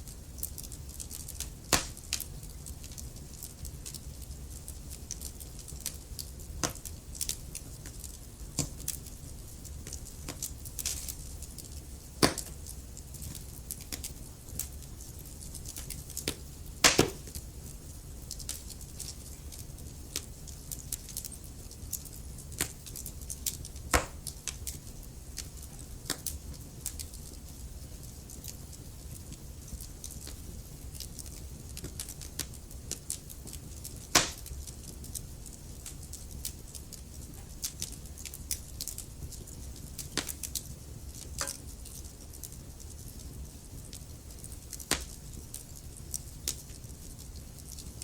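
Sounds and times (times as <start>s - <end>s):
wood fire crackling and popping: 0.0s - 48.0s.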